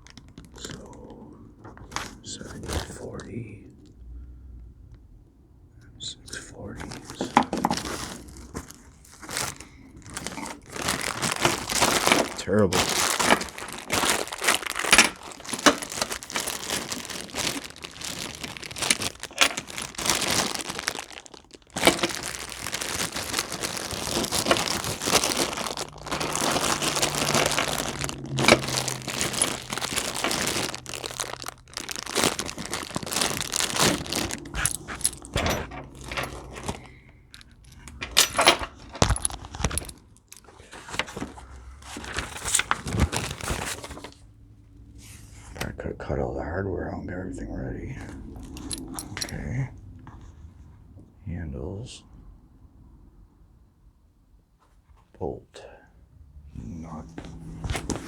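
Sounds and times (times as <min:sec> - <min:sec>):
plastic packaging crinkling and tearing: 0:00.0 - 0:01.2, 0:06.8 - 0:44.2, 0:57.3 - 0:58.0
metal bolts and nuts jingling: 0:24.2 - 0:31.2, 0:33.3 - 0:40.6, 0:48.4 - 0:49.6.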